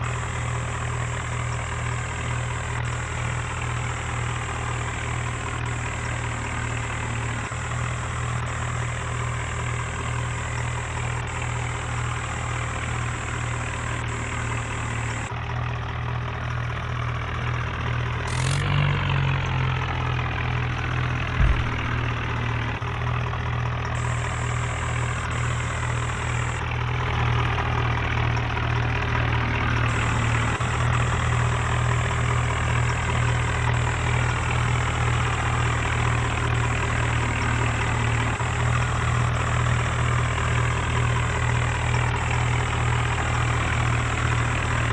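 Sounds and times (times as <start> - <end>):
tractor diesel engines running: 0.0 - 44.9
short low thump: 21.4 - 22.2.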